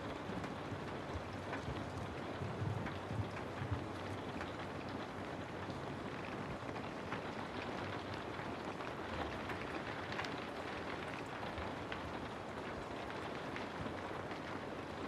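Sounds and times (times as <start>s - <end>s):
raindrops tapping on a surface: 0.0s - 15.0s
steady rain hiss: 0.0s - 15.0s.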